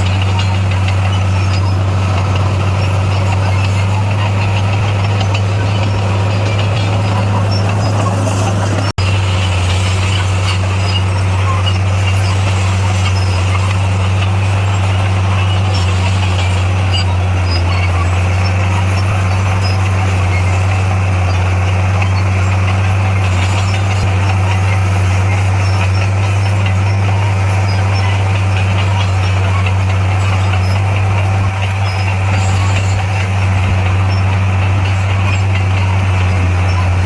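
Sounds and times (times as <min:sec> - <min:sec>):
bulldozer diesel engine droning: 0:00.0 - 0:37.0.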